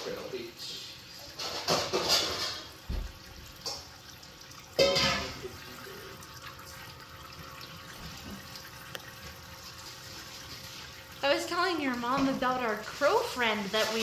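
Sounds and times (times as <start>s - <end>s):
tap water running into sink: 1.0s - 14.0s.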